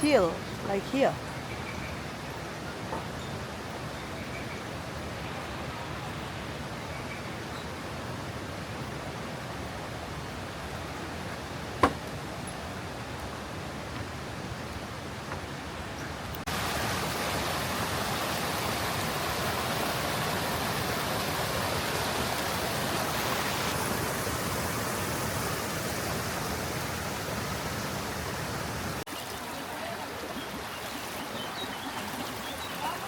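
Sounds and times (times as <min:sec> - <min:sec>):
water rushing over falls: 0:07.7 - 0:33.0.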